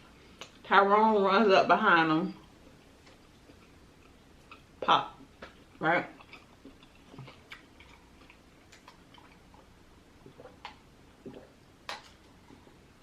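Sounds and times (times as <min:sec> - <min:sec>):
person chewing: 0:02.8 - 0:12.8.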